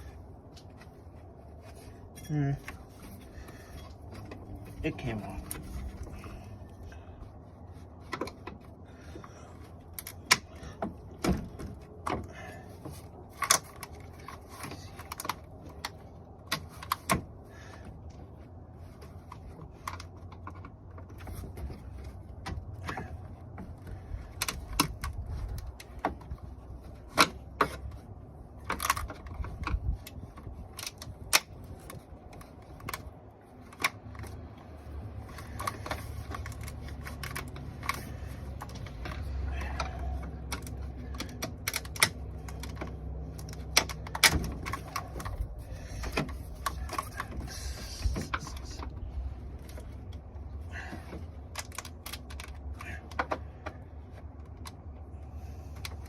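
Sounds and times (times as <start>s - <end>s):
plastic clips clicking and knocking: 35.2s - 49.0s.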